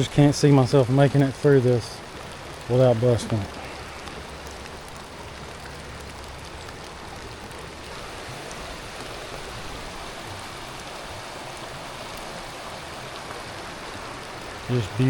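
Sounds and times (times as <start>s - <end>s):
raindrop ticks: 0.0s - 9.8s
river rushing: 0.0s - 15.0s
steady rainfall: 0.0s - 15.0s.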